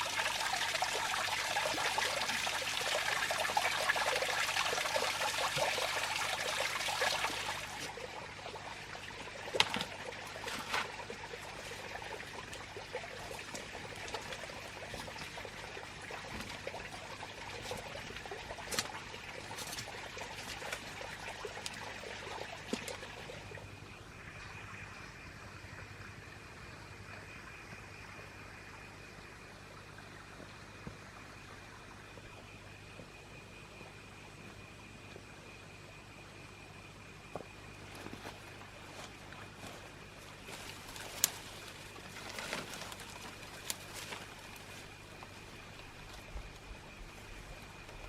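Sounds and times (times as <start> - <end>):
water trickling: 0.0 - 26.9, 37.6 - 48.0.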